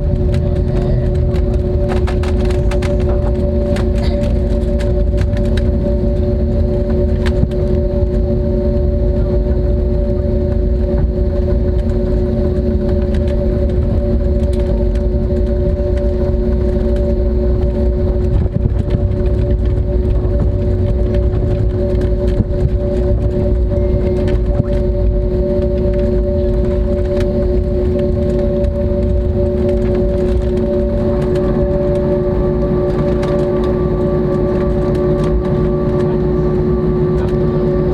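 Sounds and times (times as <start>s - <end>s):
airplane cabin rumble: 0.0s - 37.9s
constant droning hum: 0.0s - 37.9s
steady tones: 0.0s - 37.9s.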